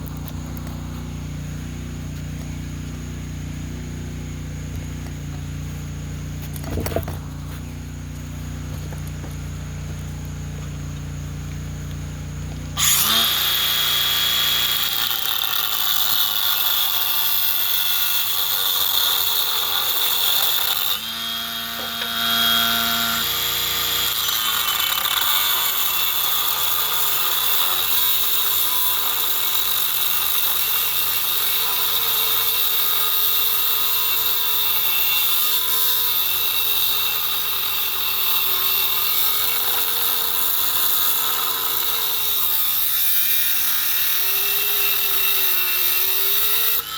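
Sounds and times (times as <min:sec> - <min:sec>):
motor whine: 0:00.0 - 0:46.9
power tool grinding steel: 0:11.8 - 0:46.9.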